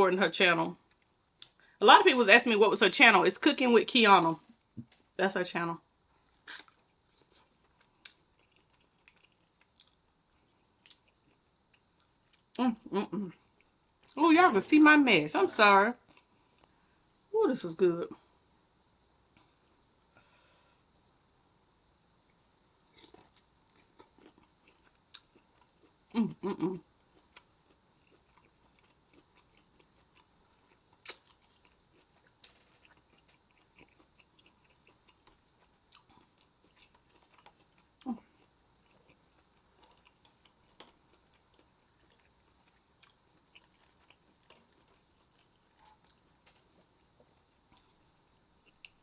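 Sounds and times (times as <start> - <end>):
soft chewing: 6.1 - 14.2, 16.0 - 17.0, 22.2 - 49.0.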